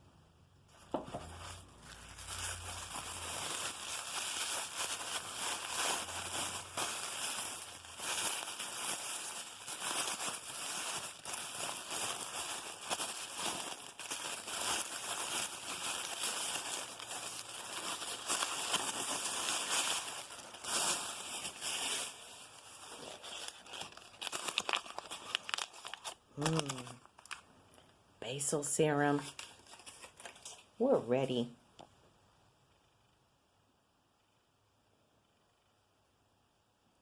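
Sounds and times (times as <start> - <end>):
wrapping paper crinkling: 0.7 - 27.5, 29.2 - 30.8.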